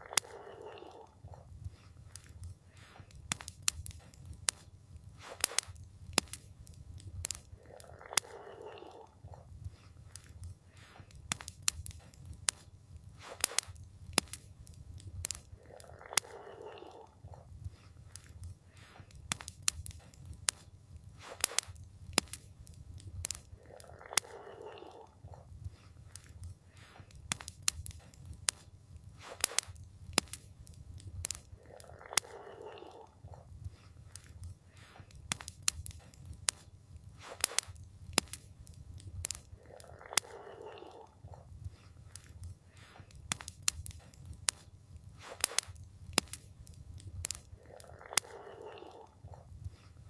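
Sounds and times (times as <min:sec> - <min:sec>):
wood fire crackling: 0:00.0 - 0:50.0.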